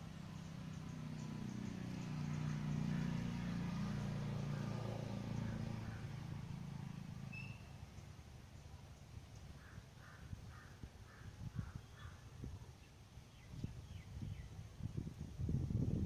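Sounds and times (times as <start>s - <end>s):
vehicle passing: 0.0s - 7.8s
bird chirp: 0.1s - 6.4s, 7.2s - 14.6s.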